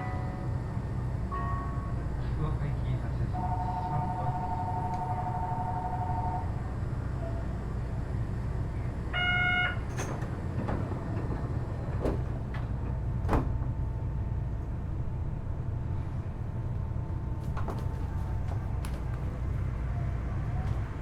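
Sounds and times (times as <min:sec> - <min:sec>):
low hum of train car: 0:00.0 - 0:21.0
two-tone warning chime: 0:03.4 - 0:06.5
short buzzer tone: 0:09.2 - 0:09.9
sliding doors clunking shut: 0:09.8 - 0:13.8, 0:17.4 - 0:19.6.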